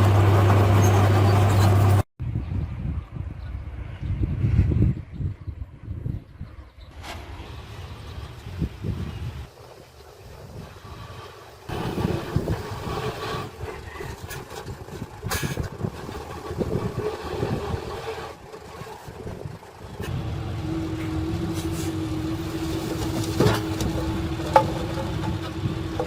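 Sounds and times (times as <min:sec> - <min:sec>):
diesel engine running with whine: 0:00.0 - 0:02.1, 0:07.4 - 0:26.0.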